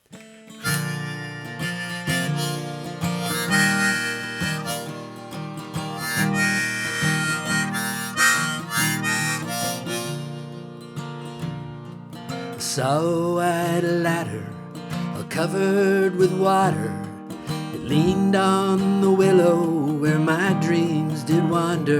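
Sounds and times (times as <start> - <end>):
strummed acoustic guitar: 0.0 - 21.9
harmonica melody: 0.3 - 12.0.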